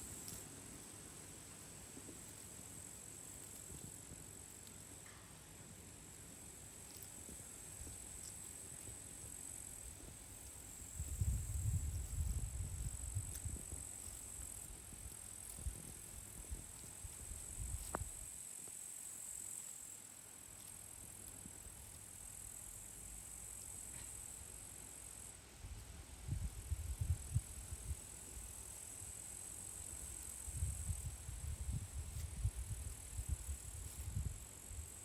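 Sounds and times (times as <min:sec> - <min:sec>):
insect chirring: 0:06.4 - 0:25.3, 0:26.3 - 0:35.0
wind buffeting microphone: 0:10.9 - 0:13.8.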